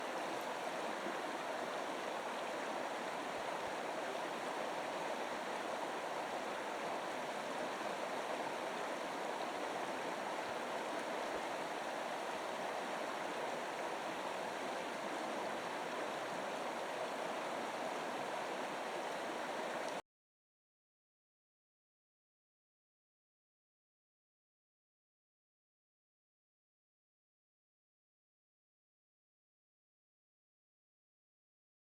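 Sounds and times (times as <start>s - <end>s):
running water rushing: 0.0s - 20.0s.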